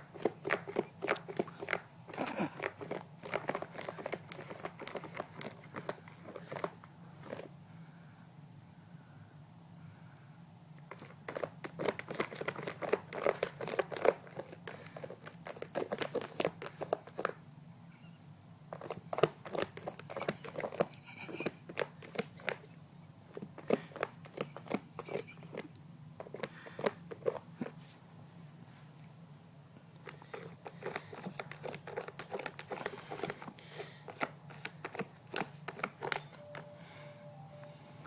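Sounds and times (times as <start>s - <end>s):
clicking and scratching: 0.0s - 7.5s, 10.9s - 17.4s, 18.7s - 22.7s, 23.3s - 27.8s, 29.9s - 36.6s
rapid bird chirping: 0.1s - 6.1s, 10.8s - 17.3s, 18.8s - 22.5s, 24.4s - 25.6s, 30.0s - 38.0s.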